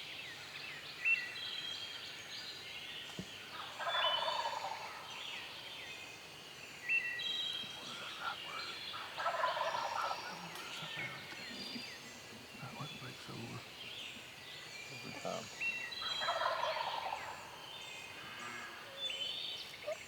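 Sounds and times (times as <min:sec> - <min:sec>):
songbirds chirping: 0:00.0 - 0:20.0
turkey gobbling: 0:09.0 - 0:11.8, 0:16.2 - 0:17.3.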